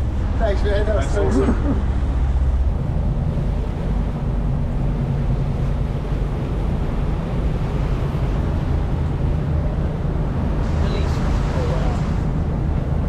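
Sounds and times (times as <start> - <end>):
boat engine droning: 0.0 - 13.0
water rushing past: 0.0 - 13.0.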